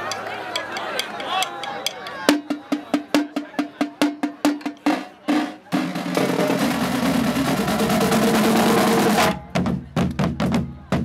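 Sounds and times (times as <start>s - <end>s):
drumline drum strokes: 0.0s - 11.0s
drum roll: 2.3s - 11.0s.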